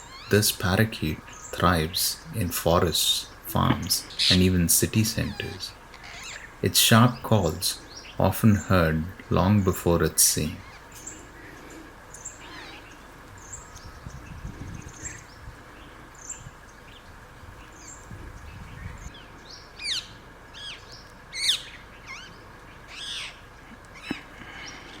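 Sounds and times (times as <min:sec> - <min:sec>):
parakeet screechy calls: 0:00.0 - 0:08.1, 0:10.4 - 0:13.6, 0:21.4 - 0:23.4
small birds chirping: 0:00.0 - 0:25.0.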